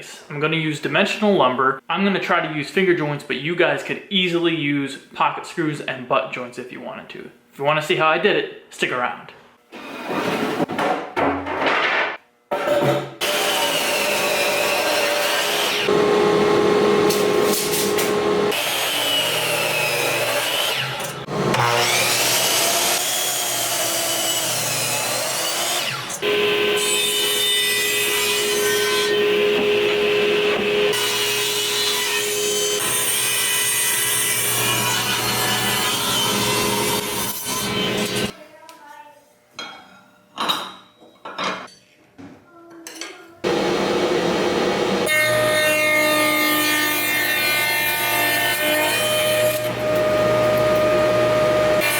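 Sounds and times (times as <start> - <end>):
power saw cutting wood: 13.2 - 38.3, 43.5 - 51.9.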